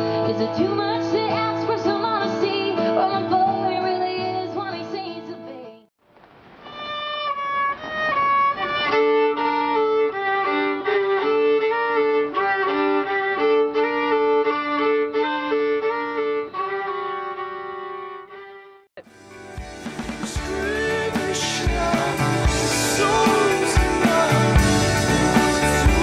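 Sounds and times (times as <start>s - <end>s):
violin playing double stops: 6.6s - 18.8s
loud music clip: 19.0s - 26.0s.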